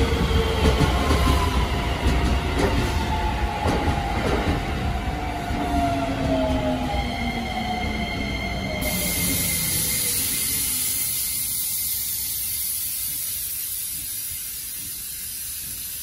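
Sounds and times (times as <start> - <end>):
train wheels rumbling on rail: 0.0 - 16.0
high hiss: 8.8 - 16.0.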